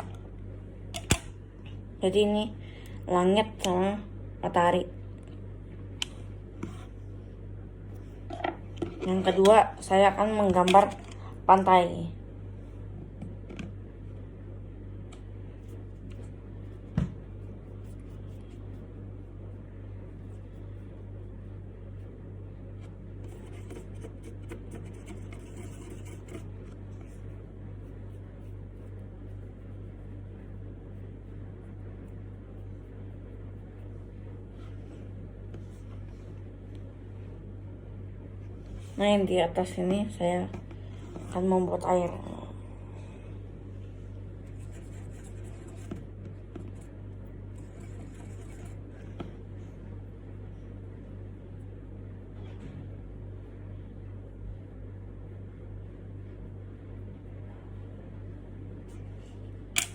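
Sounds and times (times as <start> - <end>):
steady low hum: 0.0 - 59.9
paintbrush scratchy brushing: 15.5 - 19.0, 22.9 - 35.0, 44.4 - 49.1
pen scratching on wood: 23.2 - 27.2, 44.5 - 46.8, 47.6 - 49.0.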